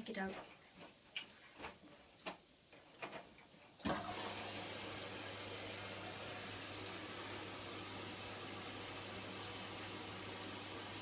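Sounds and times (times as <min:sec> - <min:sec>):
water rushing into machine: 0:03.8 - 0:11.0.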